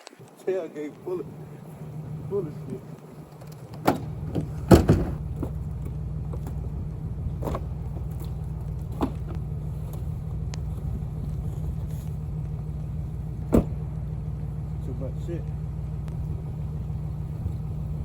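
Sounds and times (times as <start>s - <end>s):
vehicle engine idling: 0.0s - 18.0s
knocks: 3.8s - 5.2s.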